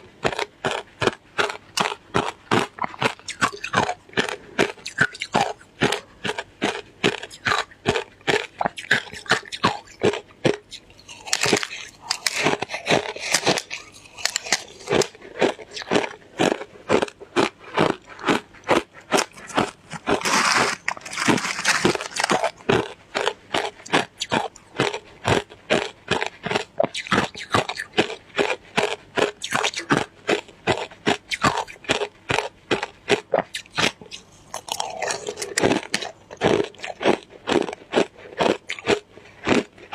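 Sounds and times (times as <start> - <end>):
shaved ice crunching: 11.0 - 15.6, 19.1 - 22.8, 34.5 - 36.1.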